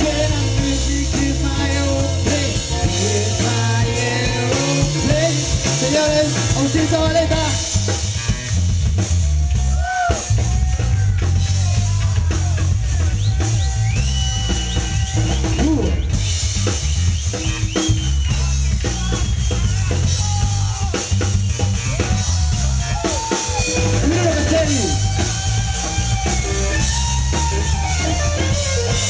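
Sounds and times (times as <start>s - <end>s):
bending lead guitar notes: 0.0s - 9.3s, 18.5s - 29.0s
bass guitar groove: 0.0s - 29.0s
drum kit: 0.0s - 29.0s.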